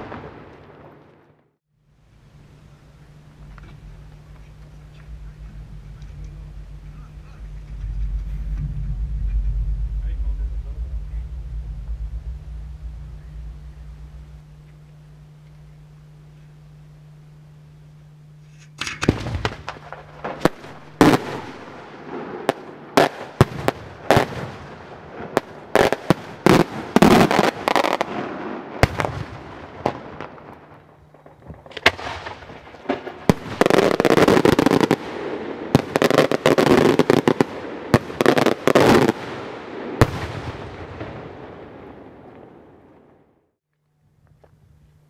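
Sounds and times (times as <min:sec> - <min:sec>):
fireworks bangs and crackle: 0:00.0 - 0:01.6, 0:02.9 - 0:15.7, 0:18.5 - 0:43.4.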